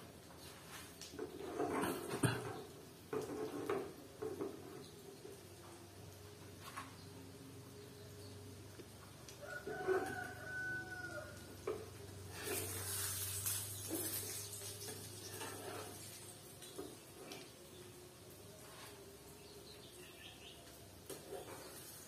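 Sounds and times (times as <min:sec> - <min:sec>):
rooster crowing: 0:09.4 - 0:11.5.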